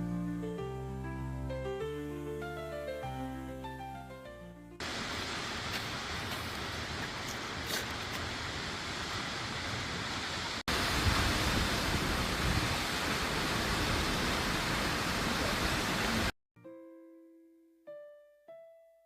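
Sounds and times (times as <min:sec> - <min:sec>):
waterfall rushing: 0:04.8 - 0:16.3.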